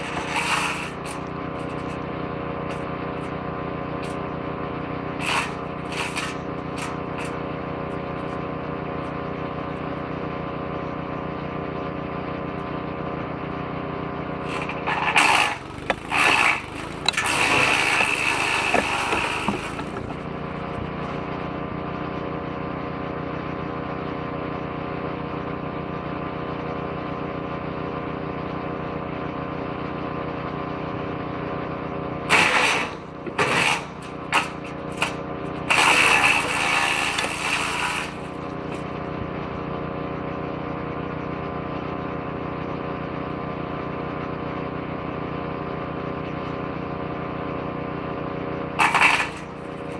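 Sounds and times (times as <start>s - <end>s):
woodchipper engine running: 0.0s - 49.9s
branches crunching in shredder: 14.4s - 22.0s.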